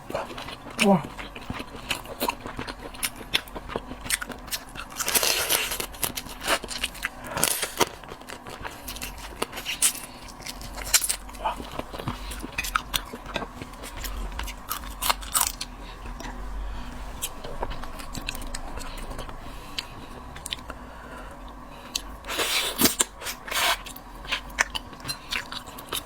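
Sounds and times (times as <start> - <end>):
chewing: 0.0 - 26.0.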